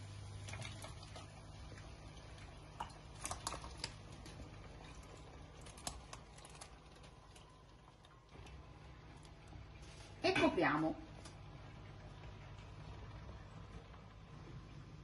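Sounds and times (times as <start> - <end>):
potato pieces splashing into water: 2.4 - 7.5.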